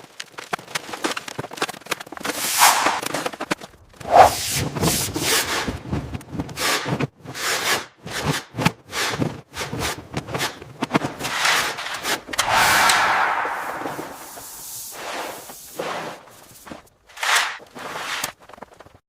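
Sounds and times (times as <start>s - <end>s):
scraping and rubbing strokes: 2.3s - 3.3s, 4.0s - 4.6s, 12.4s - 15.5s.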